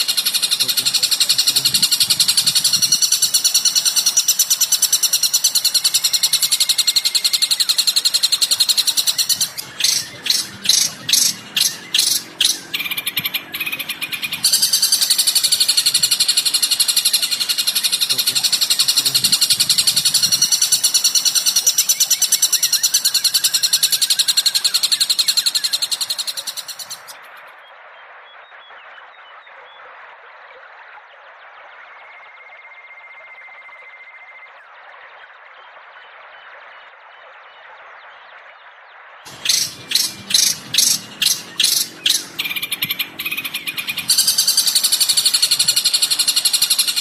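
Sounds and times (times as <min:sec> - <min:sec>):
bird chattering: 0:00.0 - 0:27.2, 0:39.3 - 0:47.0
loud bird notes: 0:00.0 - 0:27.2, 0:39.3 - 0:47.0.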